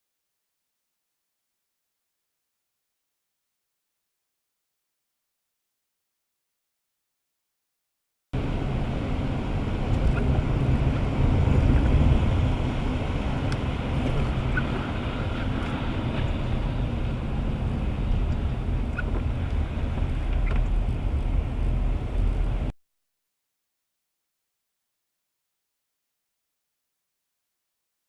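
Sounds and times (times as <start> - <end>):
road and wind noise in car: 8.4 - 22.8.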